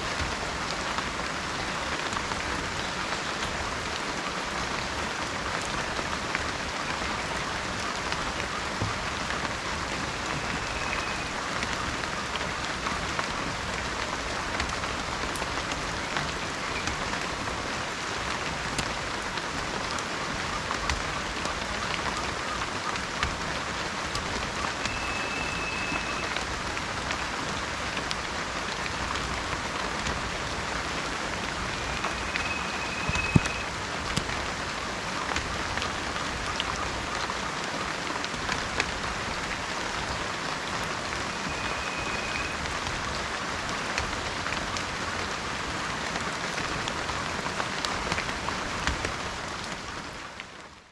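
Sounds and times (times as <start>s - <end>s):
heavy rain falling: 0.0s - 50.9s
faint short high tone: 24.8s - 26.4s, 31.8s - 33.7s.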